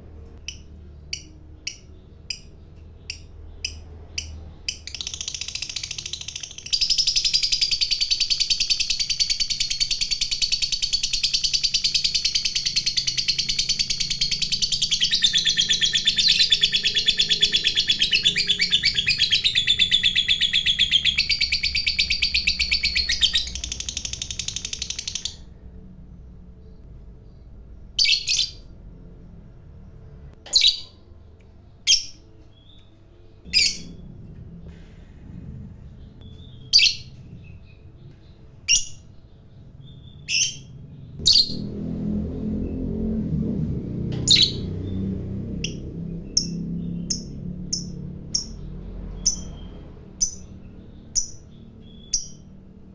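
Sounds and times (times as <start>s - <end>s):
bird chattering trill: 0.5s - 25.4s.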